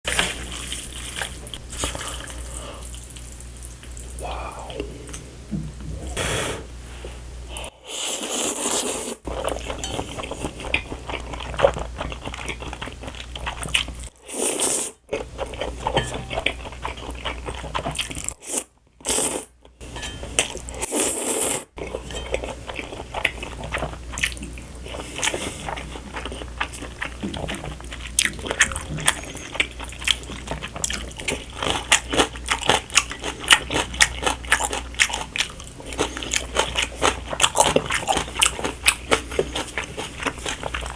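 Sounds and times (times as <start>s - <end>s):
chewing and biting noodles: 20.9s - 40.9s.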